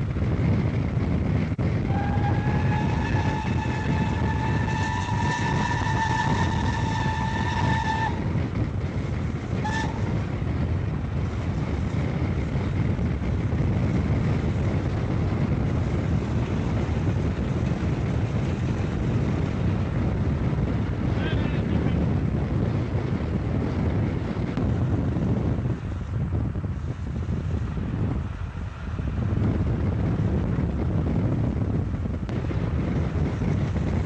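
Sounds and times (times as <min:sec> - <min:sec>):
train rumbling: 0:00.0 - 0:34.0
steam locomotive whistle: 0:01.8 - 0:08.3, 0:09.6 - 0:10.2.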